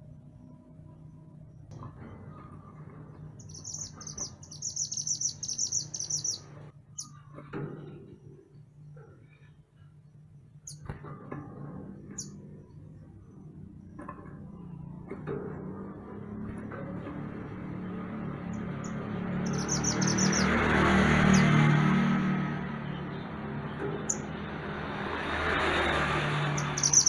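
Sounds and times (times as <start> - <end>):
songbird trilling and singing: 3.4 - 7.3, 18.8 - 20.6, 26.6 - 27.0.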